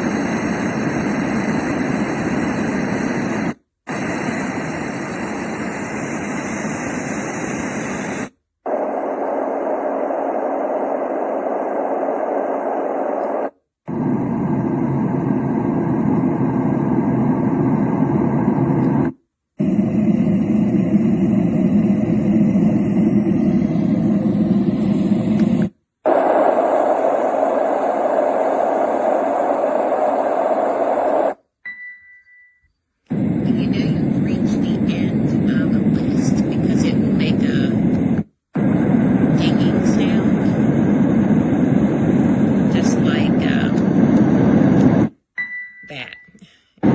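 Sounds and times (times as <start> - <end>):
white-noise machine: 0.0 - 31.4, 33.1 - 45.1.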